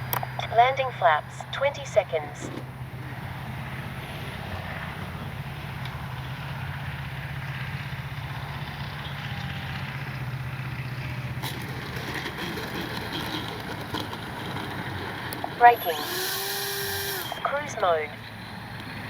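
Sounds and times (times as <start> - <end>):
electric motor humming: 15.6 - 18.1.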